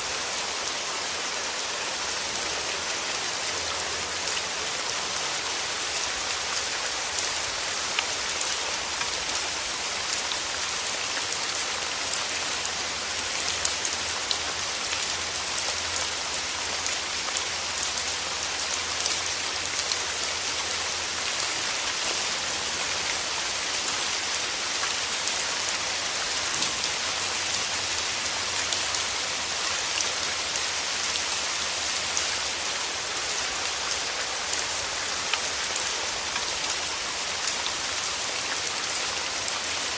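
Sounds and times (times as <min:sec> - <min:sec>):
rain falling in forest: 0:00.0 - 0:39.9.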